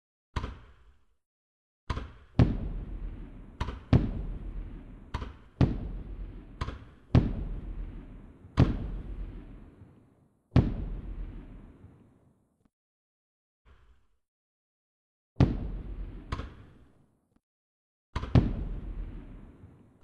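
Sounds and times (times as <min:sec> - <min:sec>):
fireworks bursting with bangs: 0:02.4 - 0:12.1, 0:18.4 - 0:19.8.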